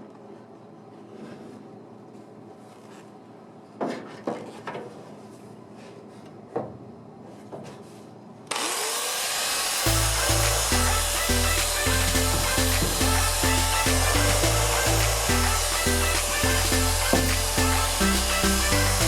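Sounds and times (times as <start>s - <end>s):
loud hissing rush: 9.6s - 19.0s
intro music with bass beat: 9.8s - 19.0s.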